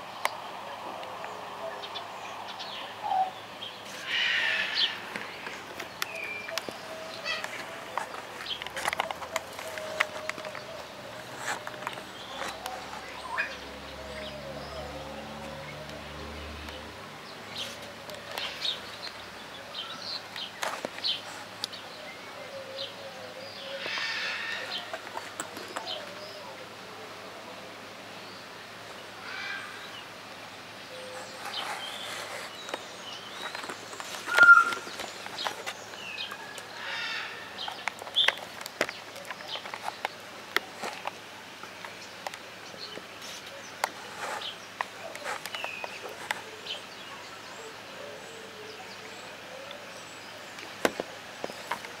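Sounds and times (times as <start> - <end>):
steady background noise: 0.0 - 52.0
short bird calls: 3.0 - 14.3, 22.4 - 25.0, 34.2 - 35.3
loud whistle-like call: 34.3 - 34.8.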